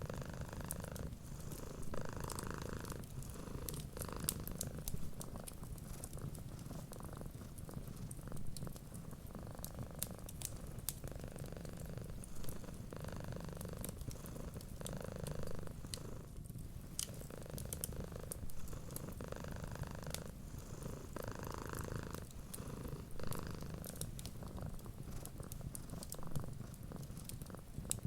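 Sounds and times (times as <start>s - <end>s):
cat purring: 0.0s - 28.0s
wood fire crackling: 0.0s - 28.0s.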